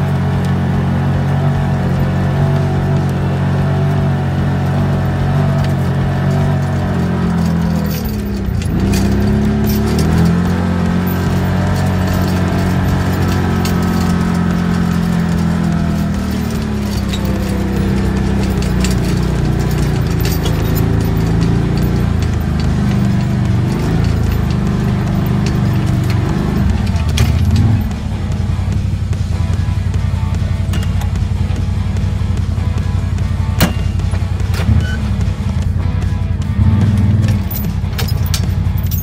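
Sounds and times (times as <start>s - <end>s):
light clicks and clatter: 0.0s - 29.6s, 30.2s - 39.0s
atv engine running: 0.0s - 39.0s.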